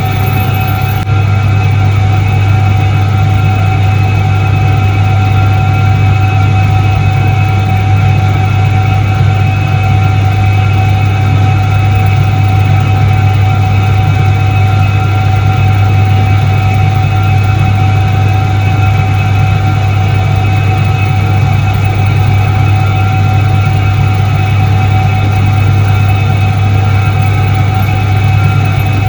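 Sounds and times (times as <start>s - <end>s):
constant high tones: 0.0s - 5.1s, 11.3s - 29.0s
washing machine motor hum: 0.0s - 29.0s.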